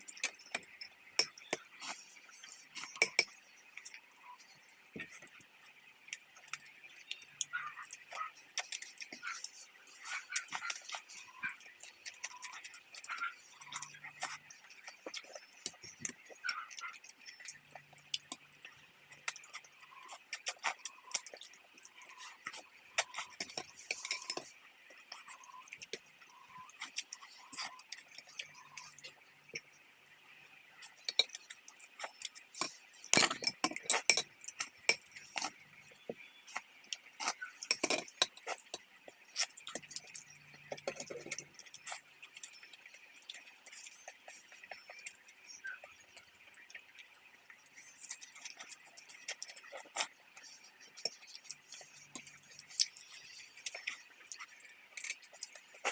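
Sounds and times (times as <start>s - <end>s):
utensils clinking against bowls: 22.1s - 25.3s, 30.8s - 36.6s, 37.2s - 38.8s.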